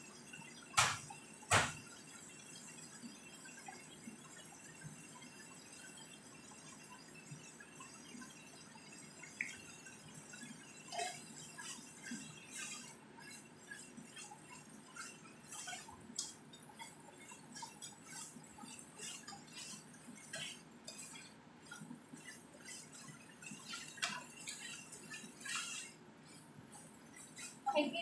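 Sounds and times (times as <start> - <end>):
spatula scraping a pan: 8.5 - 28.0.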